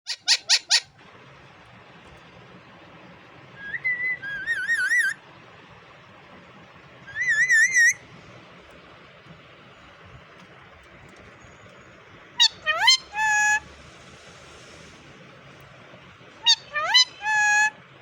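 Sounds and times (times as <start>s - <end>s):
parakeet warbling whistles: 0.1s - 0.9s, 3.6s - 5.2s, 7.1s - 8.0s, 12.4s - 13.6s, 16.4s - 17.7s
parakeet shrill calls: 0.1s - 1.0s, 3.6s - 5.2s, 7.1s - 8.0s, 12.4s - 13.7s, 16.4s - 17.8s.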